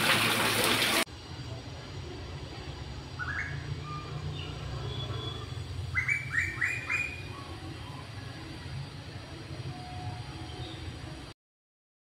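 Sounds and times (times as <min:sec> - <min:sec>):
bird calling rising notes: 0:05.9 - 0:08.0.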